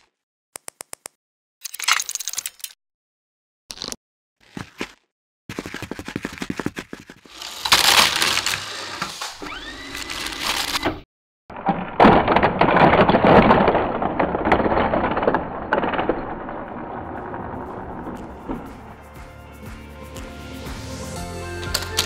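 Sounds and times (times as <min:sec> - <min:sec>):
rumbling clatter of knocks: 0:11.5 - 0:19.3.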